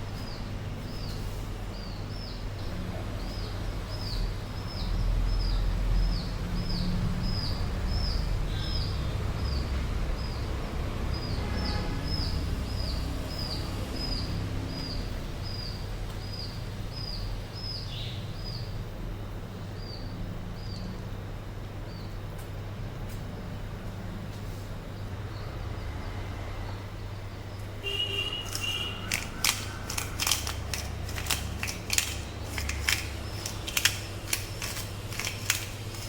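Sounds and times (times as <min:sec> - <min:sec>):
bird chirping: 0:00.0 - 0:10.5, 0:11.1 - 0:18.8, 0:27.5 - 0:36.0.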